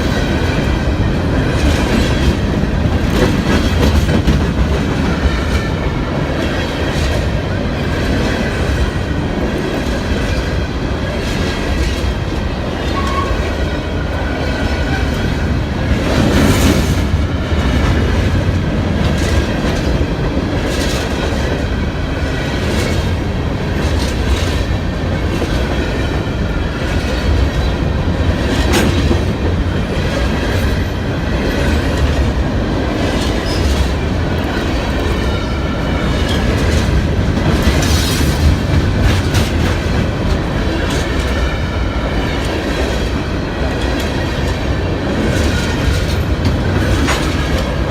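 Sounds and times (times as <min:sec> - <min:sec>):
train rumbling past: 0:00.0 - 0:47.9.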